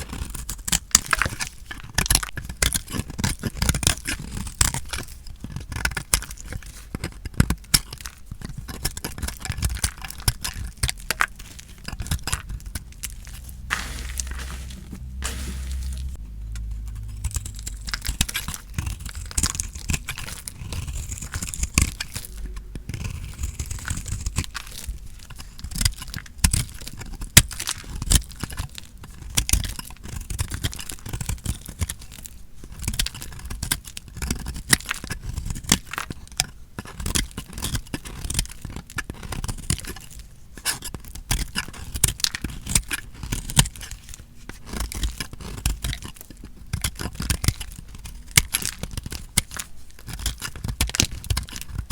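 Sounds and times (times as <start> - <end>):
knife cutting dry soap: 0.0 - 16.2.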